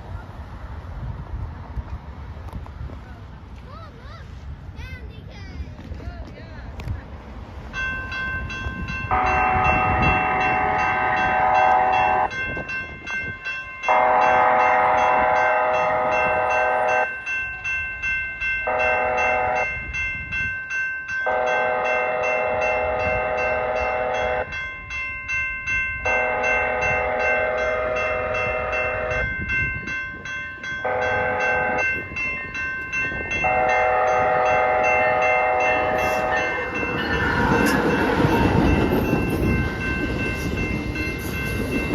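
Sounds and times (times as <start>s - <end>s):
crossing warning bell ringing: 7.4s - 41.9s
train air horn blasts: 9.1s - 12.3s, 13.9s - 17.1s, 18.7s - 19.7s, 21.3s - 24.5s, 26.1s - 29.3s, 30.8s - 31.8s, 33.4s - 39.2s.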